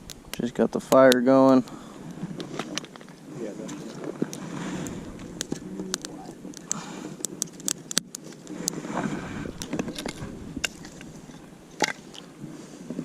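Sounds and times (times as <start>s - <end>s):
campfire crackling and popping: 0.0s - 13.0s
low rushing noise: 8.8s - 11.8s.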